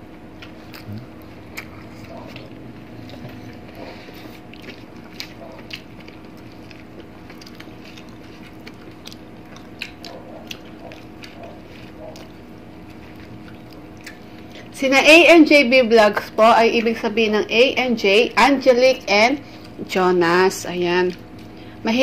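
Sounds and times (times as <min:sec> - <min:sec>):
faint steady hum: 0:00.0 - 0:22.0
wet chewing and mouth noises: 0:00.1 - 0:14.7, 0:21.0 - 0:21.7.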